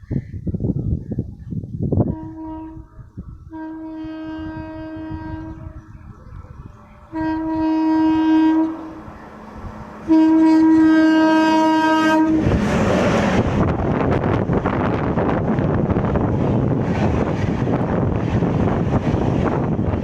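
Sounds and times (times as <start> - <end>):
train passing at speed: 1.9 - 20.0
train air horn blasts: 2.1 - 2.9, 3.5 - 5.8, 7.1 - 9.1, 10.0 - 12.6.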